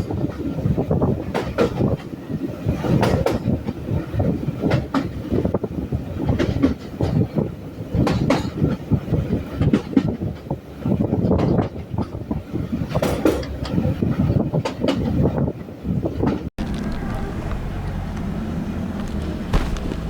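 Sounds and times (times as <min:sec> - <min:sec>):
train wheels clattering on rails: 0:00.0 - 0:15.5.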